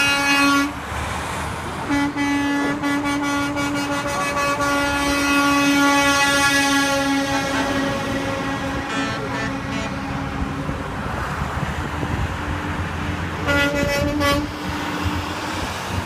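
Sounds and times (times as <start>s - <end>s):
truck air horns honking: 0.0s - 0.8s, 1.8s - 10.7s, 13.4s - 15.4s
passing truck engines and tyres: 0.0s - 16.0s.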